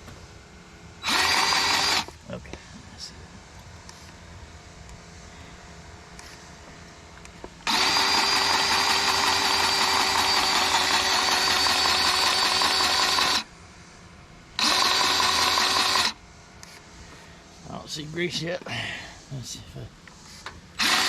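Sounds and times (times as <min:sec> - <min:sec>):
electric grease gun motor: 0:01.0 - 0:02.1, 0:07.6 - 0:13.5, 0:14.6 - 0:16.2, 0:20.8 - 0:21.0.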